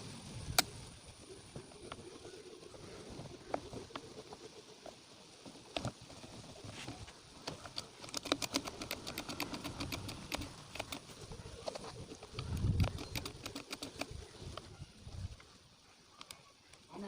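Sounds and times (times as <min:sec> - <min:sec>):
uneven run of ticks: 0:01.5 - 0:17.0.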